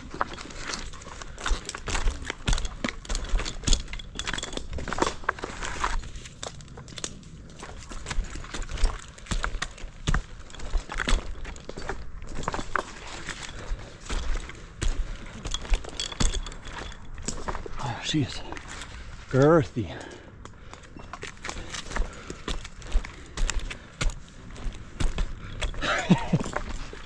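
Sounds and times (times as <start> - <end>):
rustling and handling noise: 0.0 - 27.0
steady low rumble: 0.0 - 27.0.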